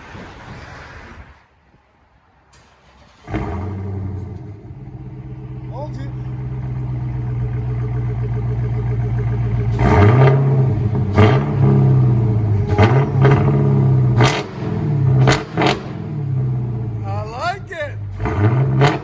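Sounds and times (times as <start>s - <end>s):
car engine idling: 2.5s - 18.5s
engine revving: 2.6s - 17.3s, 18.0s - 19.0s.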